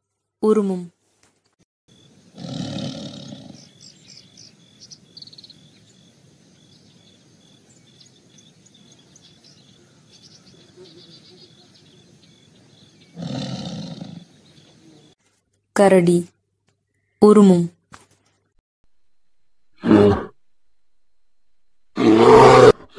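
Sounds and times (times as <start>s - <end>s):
tiger roaring: 2.3s - 3.7s, 13.1s - 14.4s, 19.8s - 20.4s, 22.0s - 22.9s
faint bird chirps: 3.2s - 15.2s, 16.7s - 17.2s.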